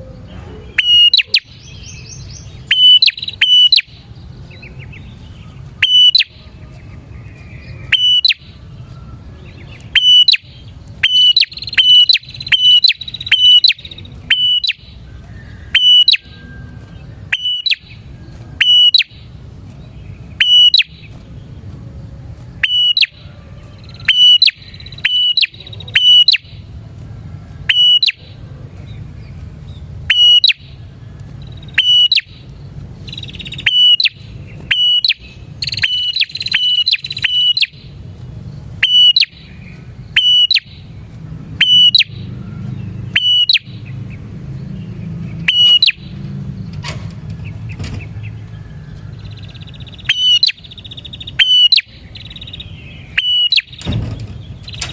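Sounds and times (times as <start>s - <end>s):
bird calling sharp high notes: 0.0s - 6.6s, 7.5s - 19.4s, 20.2s - 21.2s, 22.6s - 26.7s, 27.6s - 28.4s, 30.0s - 30.8s, 31.4s - 38.0s, 38.7s - 40.9s, 41.5s - 42.4s, 43.0s - 44.0s, 45.3s - 46.4s, 49.2s - 54.9s.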